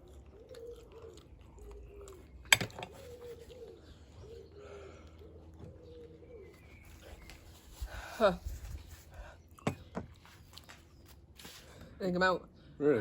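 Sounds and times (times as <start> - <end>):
pigeon cooing: 0.0 - 8.6.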